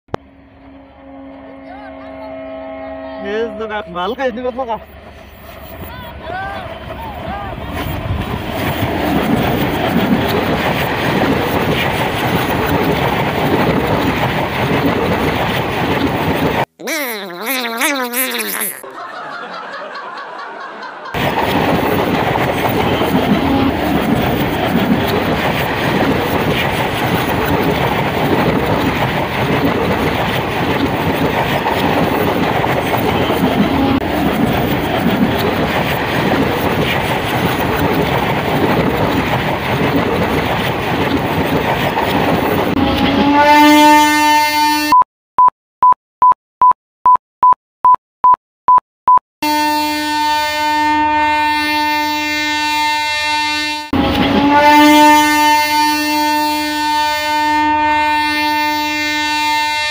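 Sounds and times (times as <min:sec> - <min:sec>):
rising horn-like tone: 0:00.3 - 0:03.9
train rumbling and rattling: 0:03.2 - 0:16.7, 0:21.1 - 0:43.8, 0:53.9 - 0:55.9.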